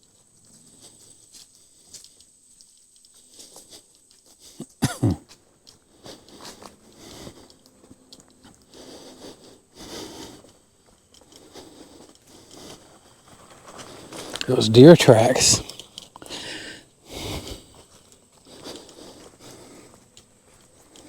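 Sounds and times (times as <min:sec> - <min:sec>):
footsteps on a trail: 0:00.0 - 0:21.0
person coughing: 0:04.6 - 0:05.2
rustling: 0:10.4 - 0:14.5.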